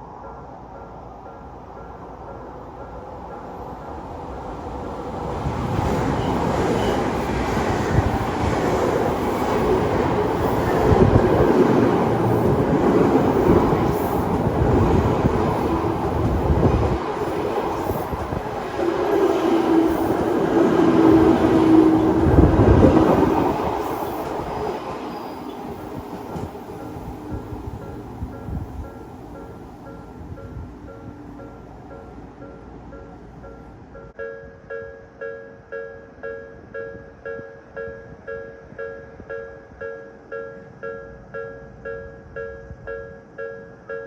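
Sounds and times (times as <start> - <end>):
electric train whine: 0.0 - 34.1
train wheels rumbling on rails: 0.0 - 34.2.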